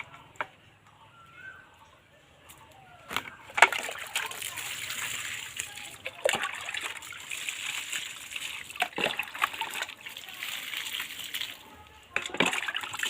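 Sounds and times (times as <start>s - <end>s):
water splashing and pouring: 3.5s - 13.0s.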